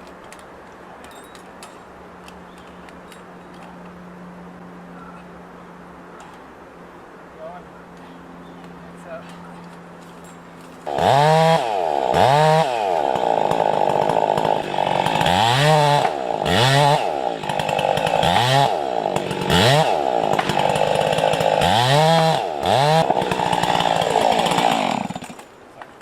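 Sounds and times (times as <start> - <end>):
chainsaw cutting wood: 10.6 - 25.6.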